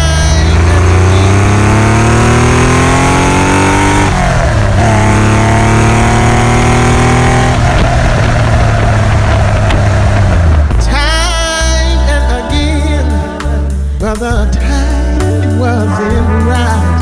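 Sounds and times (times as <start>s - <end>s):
car engine accelerating hard: 0.0s - 11.2s.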